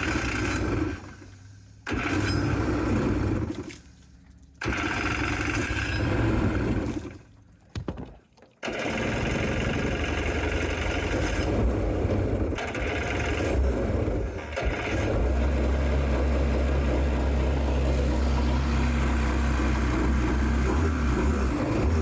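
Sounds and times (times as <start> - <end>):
boat engine running loud: 0.0 - 3.8, 4.6 - 7.2, 8.7 - 22.0.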